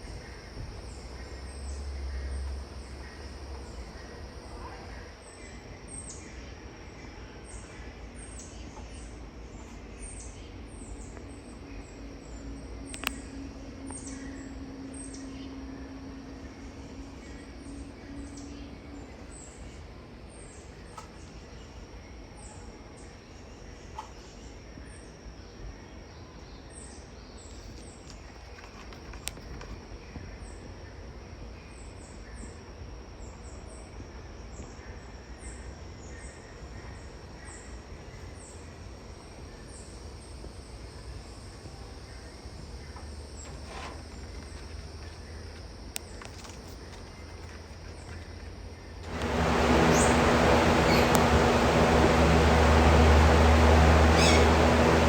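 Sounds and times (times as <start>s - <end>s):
steady background hum: 9.3s - 22.2s, 41.4s - 55.0s
birds chirping: 49.1s - 55.0s.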